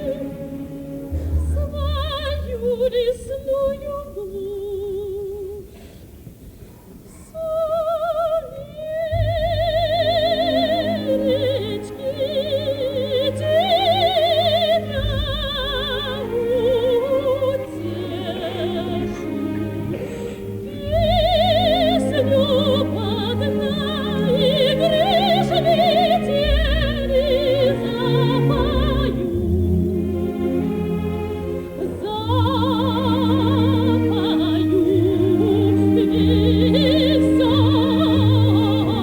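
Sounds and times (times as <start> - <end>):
operatic soprano singing: 0.0 - 5.8, 7.2 - 39.0
symphony orchestra: 0.0 - 39.0.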